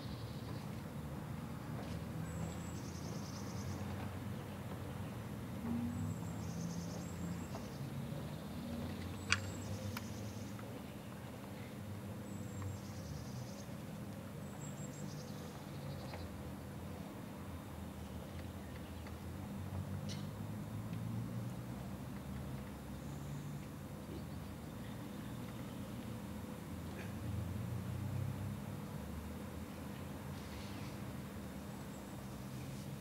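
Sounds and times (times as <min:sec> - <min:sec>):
small songbird singing: 0:02.2 - 0:03.9.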